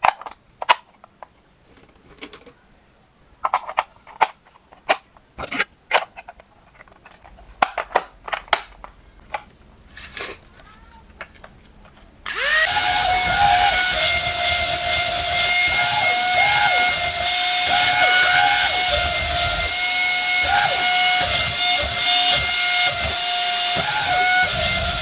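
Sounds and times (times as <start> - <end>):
small electric motor whining: 12.3 - 25.0.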